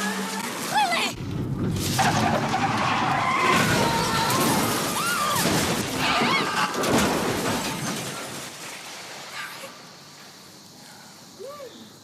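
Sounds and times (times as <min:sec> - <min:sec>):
car crash smash: 0:01.2 - 0:09.3
debris clattering: 0:01.2 - 0:09.3.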